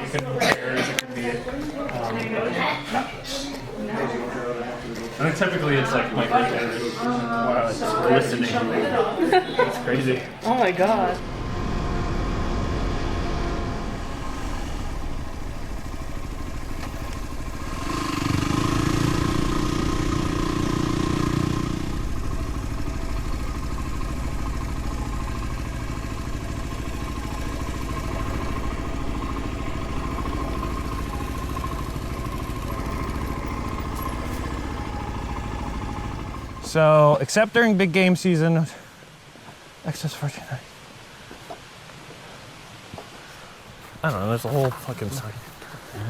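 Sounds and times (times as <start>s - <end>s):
motorcycle engine running: 11.0s - 36.9s.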